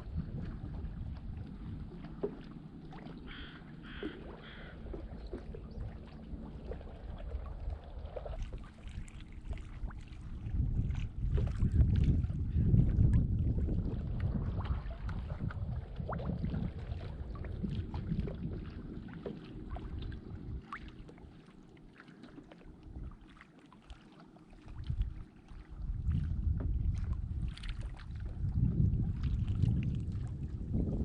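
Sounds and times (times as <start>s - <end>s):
wind rumble on microphone: 0.0s - 21.4s, 24.6s - 31.0s
small water splashes: 0.0s - 31.0s
water lapping against kayak hull: 0.0s - 31.0s.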